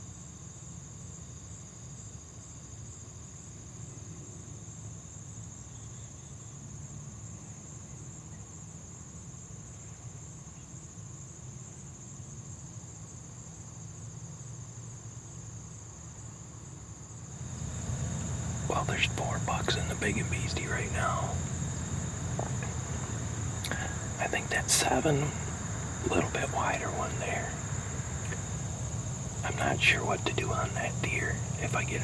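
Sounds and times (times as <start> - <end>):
crickets trilling: 17.3 - 32.0
low steady rumble: 17.5 - 32.0.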